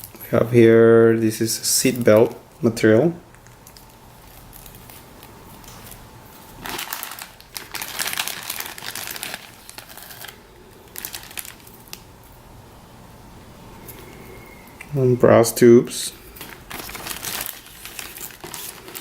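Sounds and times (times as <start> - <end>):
packaging crinkling: 3.3 - 12.2, 16.2 - 19.0.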